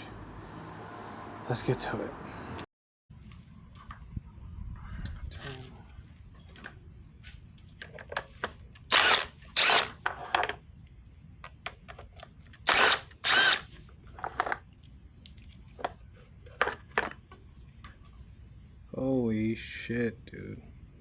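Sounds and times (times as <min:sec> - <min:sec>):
power drill-driver bursts: 0:08.9 - 0:10.0, 0:12.7 - 0:13.7.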